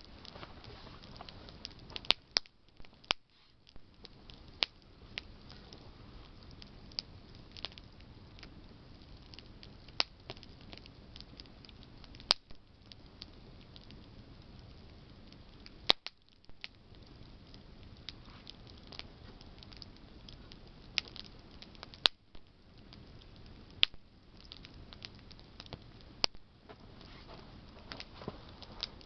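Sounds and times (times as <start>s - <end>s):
campfire crackling and popping: 0.0s - 29.0s
low steady fire hiss: 0.0s - 29.0s.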